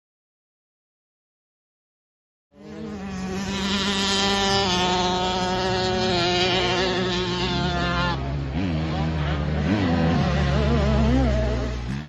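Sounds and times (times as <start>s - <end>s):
motocross bike engine buzzing: 2.6s - 12.0s.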